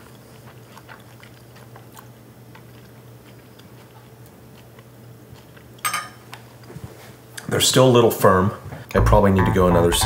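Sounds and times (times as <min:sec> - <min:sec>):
person chewing beans: 0:00.0 - 0:07.5.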